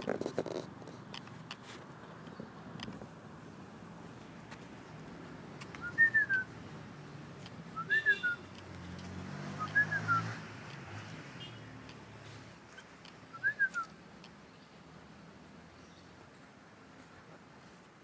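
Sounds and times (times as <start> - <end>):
bird whistling: 5.8 - 6.5, 7.8 - 8.5, 9.6 - 10.4, 13.3 - 14.0.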